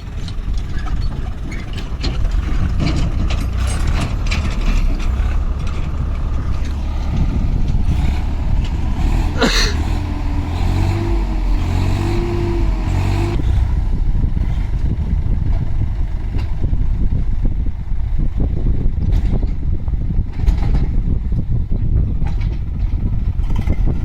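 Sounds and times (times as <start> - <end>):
heavy diesel engine under load: 0.0 - 24.0.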